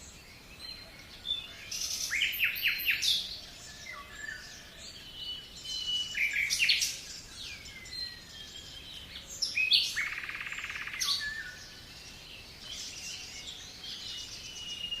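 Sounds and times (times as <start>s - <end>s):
faint background hiss: 0.0s - 15.0s
songbirds chirping and singing: 0.0s - 15.0s
bird trill: 5.3s - 15.0s.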